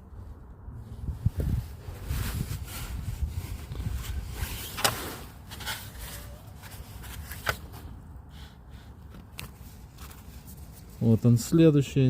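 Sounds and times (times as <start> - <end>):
handling rustle: 1.3 - 8.0, 9.0 - 11.6.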